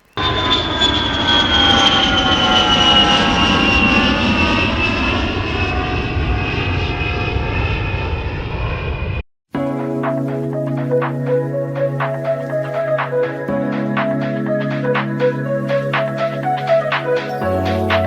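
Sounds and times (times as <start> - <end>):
aeroplane engine with falling whine: 0.0 - 9.2, 10.3 - 18.0
dance music: 9.7 - 18.0.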